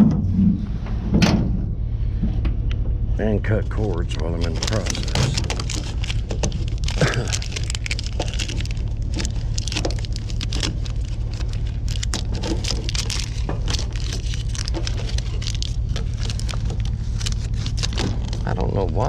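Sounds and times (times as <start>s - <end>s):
vehicle engine humming: 0.0s - 19.0s
scrap clattering and clicking: 4.1s - 19.0s.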